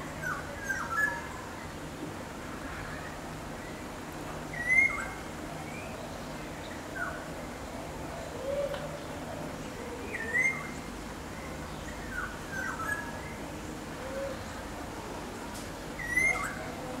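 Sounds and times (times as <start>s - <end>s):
bird whistling: 16.0s - 16.6s.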